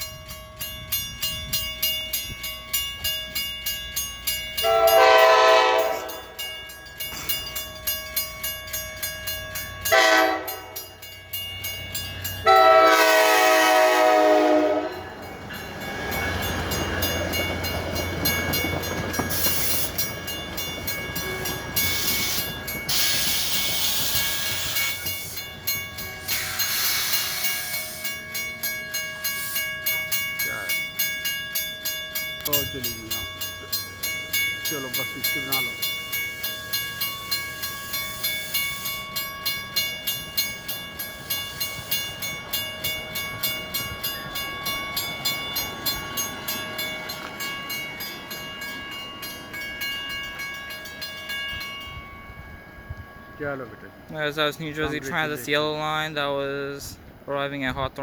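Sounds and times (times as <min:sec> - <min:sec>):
bell dinging steadily: 0:00.0 - 0:13.1, 0:14.6 - 0:56.9
train wheels rumbling on rail: 0:00.0 - 0:58.0
train horn blasts: 0:04.6 - 0:06.2, 0:09.9 - 0:10.8, 0:12.4 - 0:15.0.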